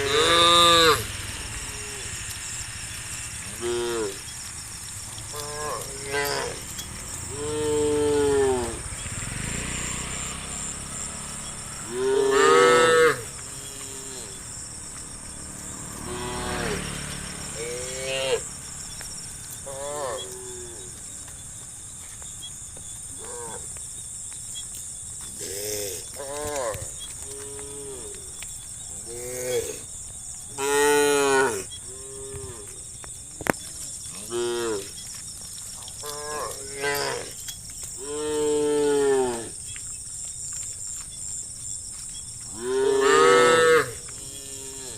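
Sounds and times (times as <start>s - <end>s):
cows mooing: 0.0s - 18.5s, 19.6s - 21.0s, 30.5s - 32.7s, 34.0s - 35.1s, 35.9s - 39.6s, 42.5s - 44.9s.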